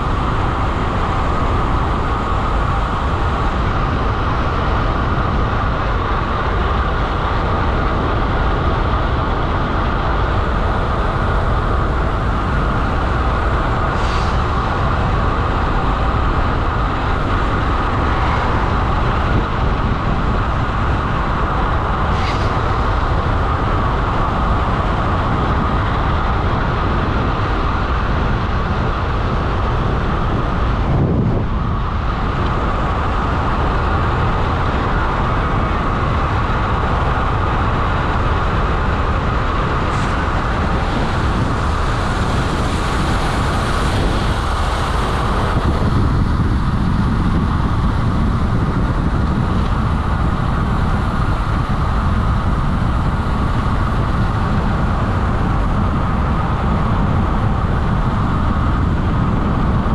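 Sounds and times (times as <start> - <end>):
bike tyre roar on tarmac: 0.0 - 59.9
wind buffeting microphone: 0.0 - 59.9.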